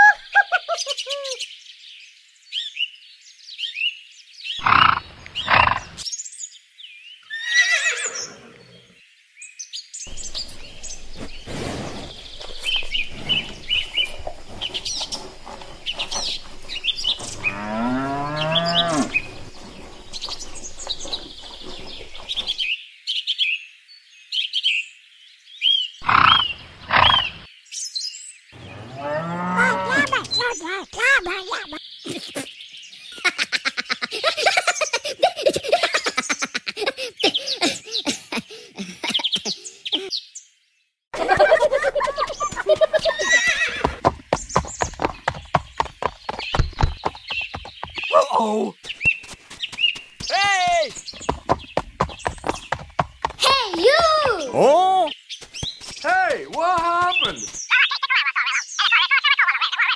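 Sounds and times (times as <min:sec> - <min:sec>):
birds chirping: 0:00.0 - 0:02.8, 0:04.4 - 0:09.1, 0:09.9 - 0:23.1, 0:25.6 - 0:59.9
loud rising bird call: 0:10.1 - 0:22.6.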